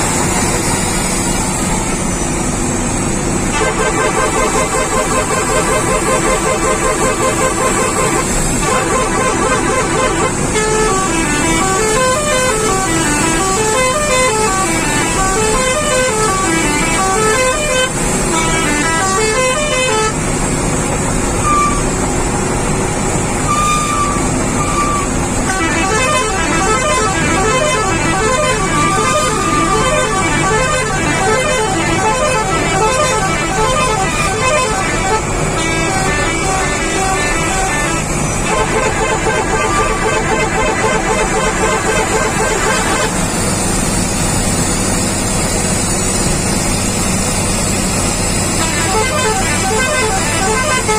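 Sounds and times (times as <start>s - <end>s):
truck engine running: 0.0s - 50.9s
truck musical horn tune: 0.0s - 50.9s.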